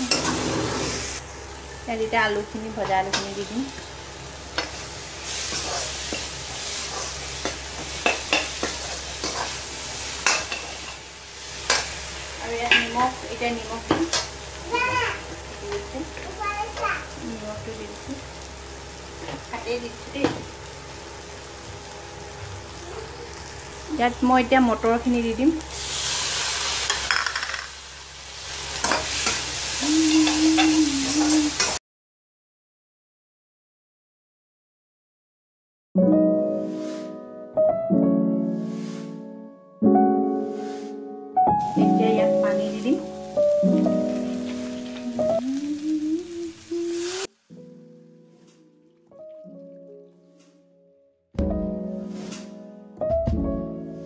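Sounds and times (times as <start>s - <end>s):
metal ladle scraping pan: 0.0s - 1.2s
spatula scraping a pan: 0.0s - 1.2s, 4.6s - 11.0s, 40.4s - 41.0s
potatoes sizzling in oil: 0.0s - 31.8s, 41.6s - 48.6s.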